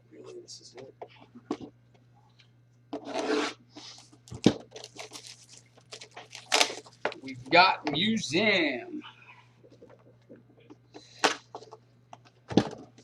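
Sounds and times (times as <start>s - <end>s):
wrapper tearing: 4.7s - 7.3s.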